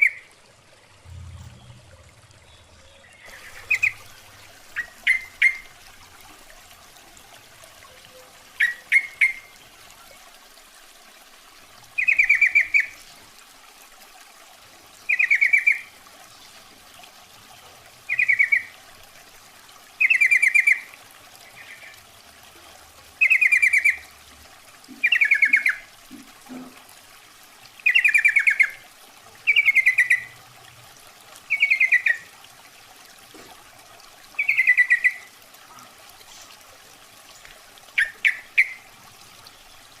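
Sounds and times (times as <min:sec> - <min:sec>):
bulbul calling: 0:01.2 - 0:05.8, 0:08.1 - 0:09.5, 0:12.0 - 0:13.0, 0:15.1 - 0:15.9, 0:18.1 - 0:18.8, 0:20.0 - 0:20.8, 0:23.2 - 0:24.0, 0:24.9 - 0:26.7, 0:27.8 - 0:28.8, 0:29.5 - 0:30.4, 0:31.5 - 0:32.2, 0:34.4 - 0:35.3, 0:38.0 - 0:38.9.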